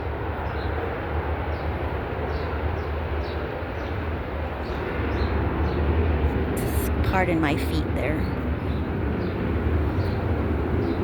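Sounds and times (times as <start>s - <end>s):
airplane taking off: 4.0s - 11.0s.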